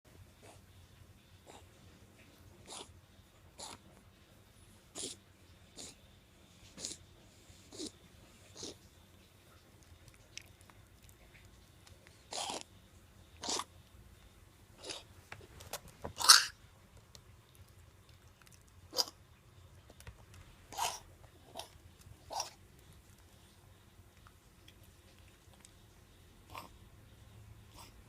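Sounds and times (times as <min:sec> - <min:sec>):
puppy coughing: 0:03.6 - 0:03.8, 0:12.3 - 0:12.7, 0:13.4 - 0:13.7, 0:16.1 - 0:16.6, 0:18.9 - 0:19.2, 0:20.7 - 0:22.6, 0:26.5 - 0:26.8.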